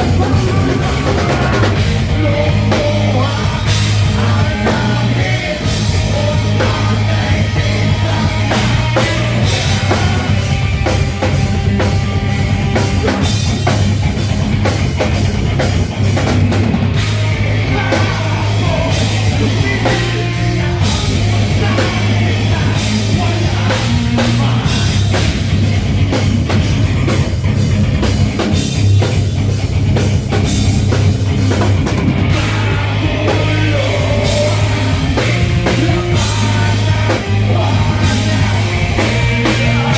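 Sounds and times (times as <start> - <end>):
person singing: 0.0 - 11.0, 17.4 - 25.3, 32.2 - 39.9
bass line: 0.0 - 39.9
drum kit: 0.0 - 39.9
rock band playing live: 0.0 - 39.9.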